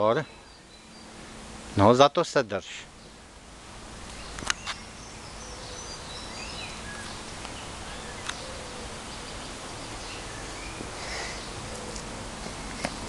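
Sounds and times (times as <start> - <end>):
small birds chirping and whistling: 0.0 - 1.2, 4.1 - 12.1
outdoor background hiss: 0.0 - 13.0.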